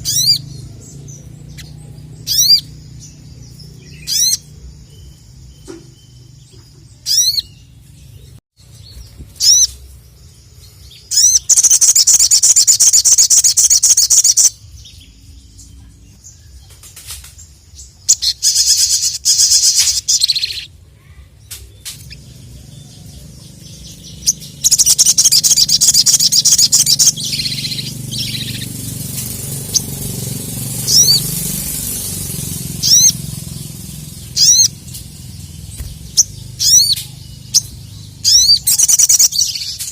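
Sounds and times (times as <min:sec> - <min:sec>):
bird singing with trills: 0:00.0 - 0:39.9.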